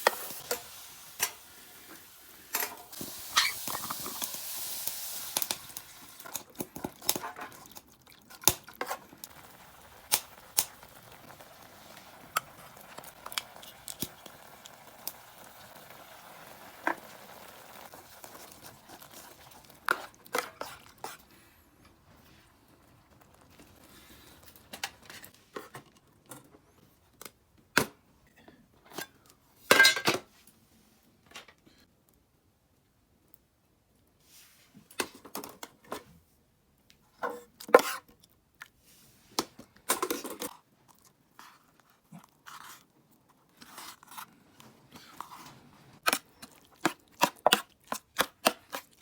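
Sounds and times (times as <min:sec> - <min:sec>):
food sizzling in a tin: 0:00.0 - 0:07.6, 0:08.3 - 0:25.3.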